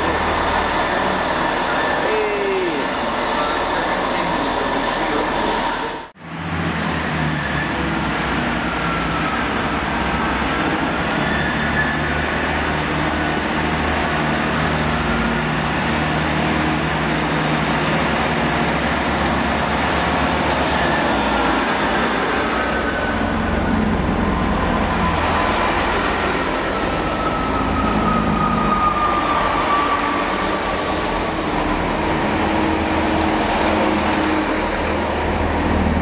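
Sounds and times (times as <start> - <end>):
trains rumbling and humming: 0.0 - 36.0
faint wavering wheel squeals: 7.3 - 13.4, 20.3 - 32.8.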